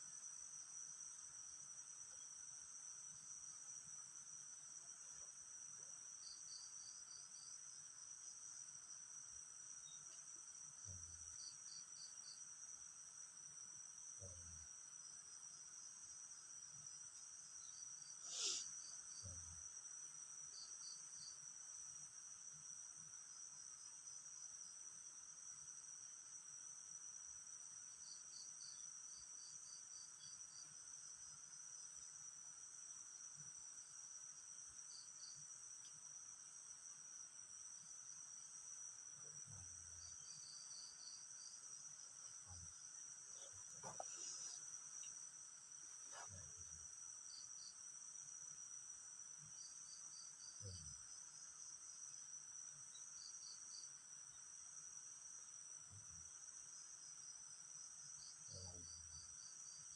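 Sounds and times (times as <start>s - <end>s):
crickets chirping: 0.0s - 59.9s
faint rustle: 43.2s - 46.6s.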